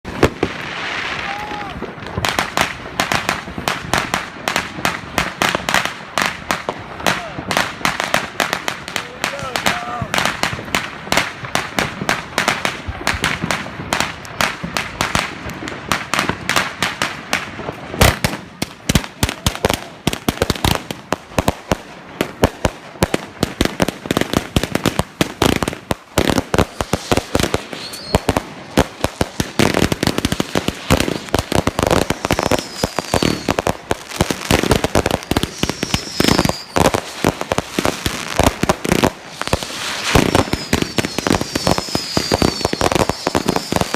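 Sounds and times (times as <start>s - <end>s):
fireworks bangs and crackles: 0.0s - 43.9s
firework whistles falling in pitch: 27.7s - 28.3s, 32.2s - 33.6s, 35.0s - 36.9s, 39.4s - 43.9s.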